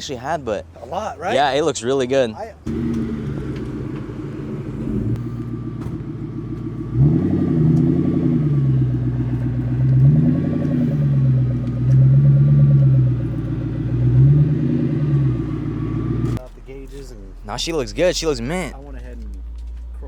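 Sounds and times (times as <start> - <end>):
car engine idling and revving: 0.7 - 20.0.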